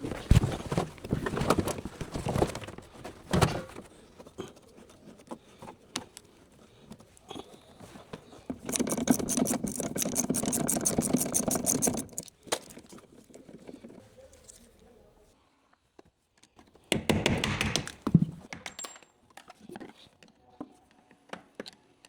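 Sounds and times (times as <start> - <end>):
hand tools clicking and knocking: 8.5 - 13.6
rapid even rattling: 8.6 - 12.9.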